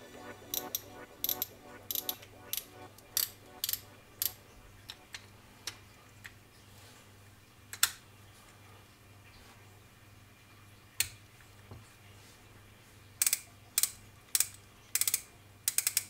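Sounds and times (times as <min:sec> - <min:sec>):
fishing reel clicking: 0:13.2 - 0:16.0.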